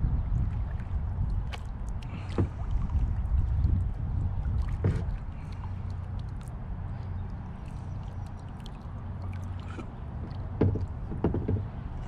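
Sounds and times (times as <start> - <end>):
steady low rumble: 0.0 - 12.0
sharp knocks: 10.6 - 11.8.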